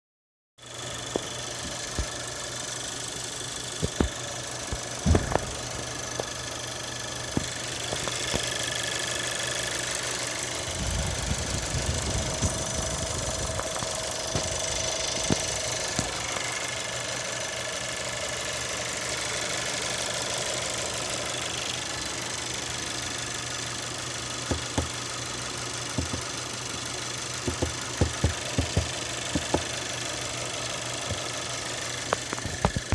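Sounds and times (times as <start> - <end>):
car engine idling: 0.6 - 32.9
sharp engine clicks: 3.5 - 6.4, 7.2 - 9.0, 11.0 - 16.4, 24.4 - 30.0, 30.6 - 32.9.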